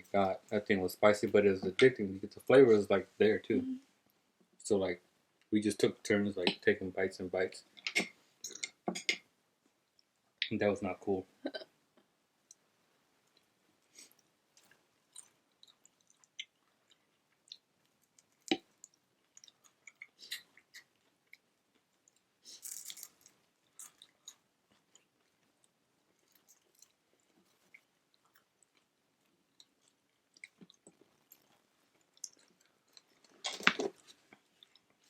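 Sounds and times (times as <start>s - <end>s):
chewing and crunching: 13.3s - 35.0s.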